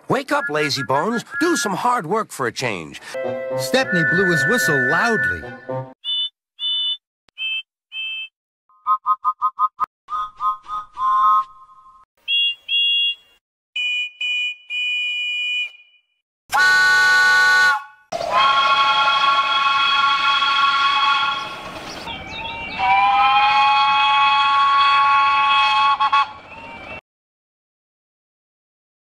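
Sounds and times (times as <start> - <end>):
high cartoon train whistle toots: 16.5 - 21.5, 22.8 - 26.4
steam locomotive chime whistle: 17.6 - 21.5.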